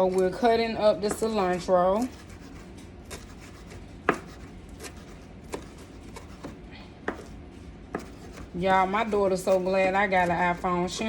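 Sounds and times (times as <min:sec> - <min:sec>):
knife chopping on cutting board: 0:01.0 - 0:08.5.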